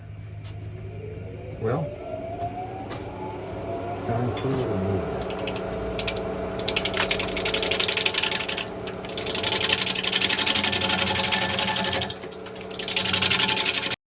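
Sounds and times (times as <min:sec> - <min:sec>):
lathe humming: 0:00.0 - 0:14.0
turning tool clicking on wood: 0:05.2 - 0:14.0.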